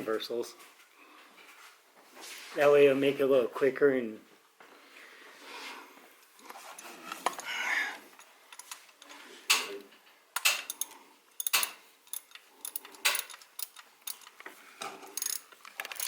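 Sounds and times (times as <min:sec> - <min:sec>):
metal hand tools clinking: 0:10.4 - 0:14.4, 0:15.0 - 0:16.0.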